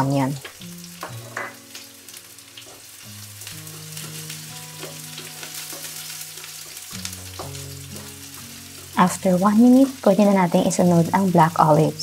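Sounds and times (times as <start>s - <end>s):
onion and garlic sizzling in oil: 0.0s - 12.0s
soft background music: 0.0s - 12.0s
wooden spatula stirring in pan: 3.7s - 9.0s.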